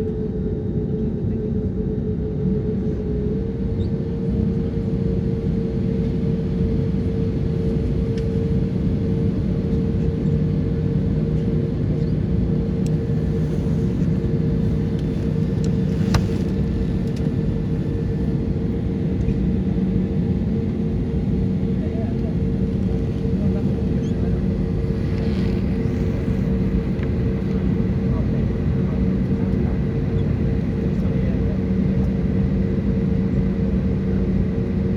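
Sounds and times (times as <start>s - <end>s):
airliner cabin drone: 0.0s - 34.9s
faint click: 15.0s - 17.3s.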